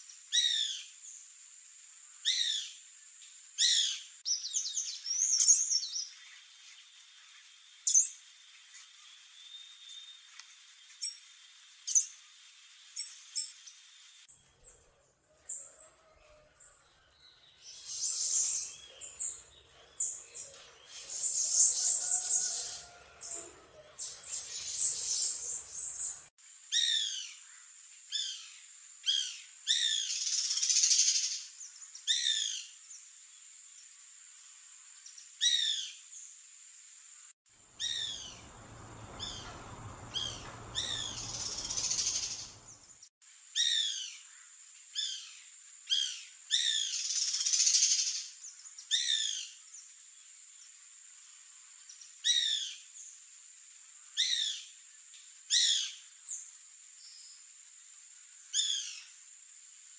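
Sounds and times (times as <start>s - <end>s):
bird chirps and trills: 37.8s - 43.0s.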